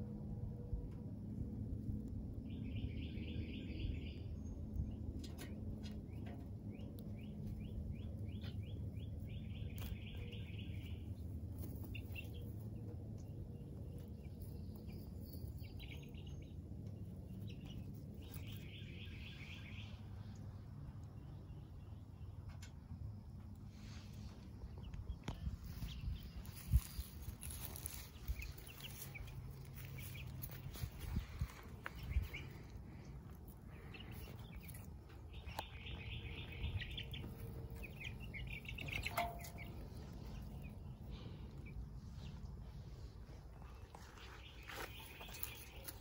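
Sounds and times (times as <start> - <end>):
low background rumble: 0.0 - 46.0
bird trills: 37.8 - 41.2.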